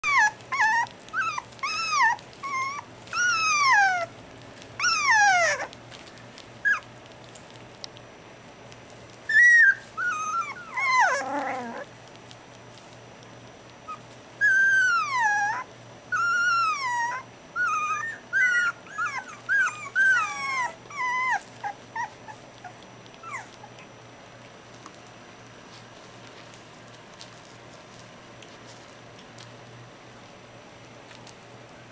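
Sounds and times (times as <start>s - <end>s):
dog whining and whimpering: 0.0s - 4.2s, 4.8s - 5.8s, 6.6s - 6.9s, 9.3s - 11.9s, 13.9s - 24.0s.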